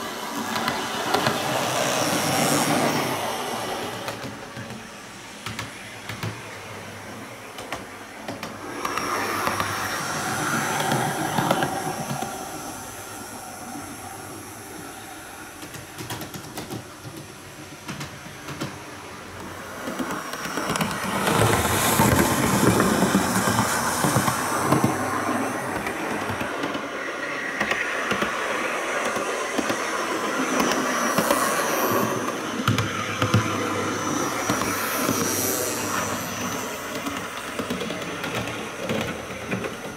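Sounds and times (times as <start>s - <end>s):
wheels clicking on rails: 0.0s - 39.9s
model train motor whirring: 19.5s - 39.9s.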